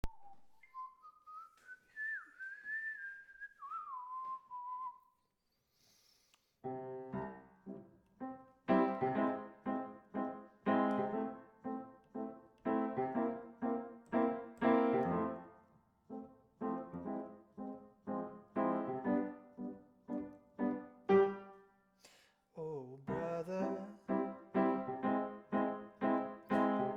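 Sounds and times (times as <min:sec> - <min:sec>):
person whistling a melody: 0:00.0 - 0:05.2
piano chords: 0:06.7 - 0:21.7, 0:23.1 - 0:26.9.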